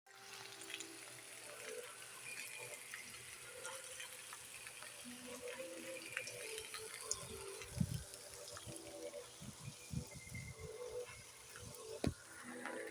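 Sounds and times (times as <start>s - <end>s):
water running and gushing: 0.1s - 12.9s
heavy rain hissing: 5.0s - 12.9s.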